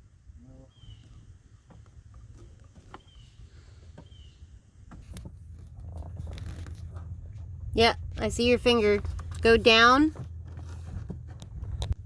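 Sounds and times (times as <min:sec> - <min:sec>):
steady low rumble: 0:04.5 - 0:12.0.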